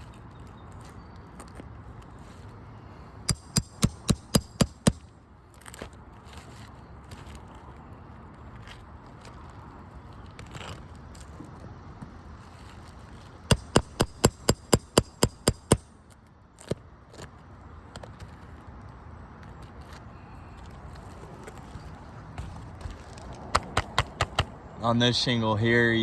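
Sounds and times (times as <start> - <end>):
hammer striking metal tool: 3.3 - 5.0, 13.5 - 15.9.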